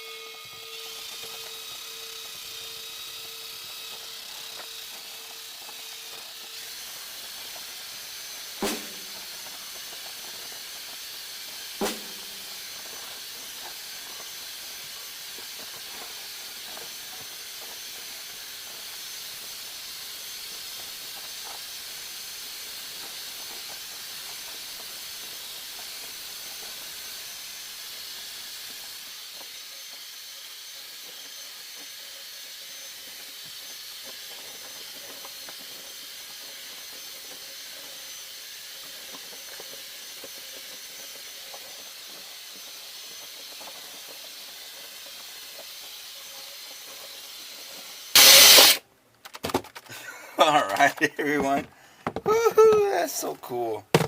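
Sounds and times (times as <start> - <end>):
power drill running: 0.0 - 48.8
sharp knocks: 8.6 - 9.2, 11.8 - 12.4.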